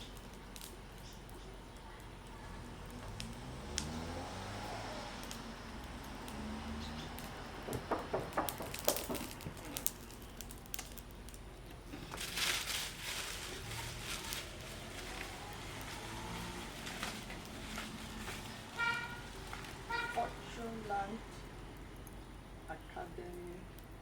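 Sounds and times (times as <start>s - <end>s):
rustling hiss: 0.0s - 24.0s
sharp clicks and knocks: 7.2s - 10.2s.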